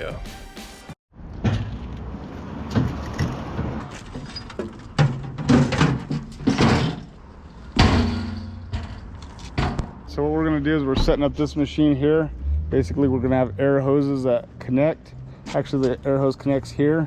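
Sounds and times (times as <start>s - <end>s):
knocks and thuds: 4.6s - 7.1s.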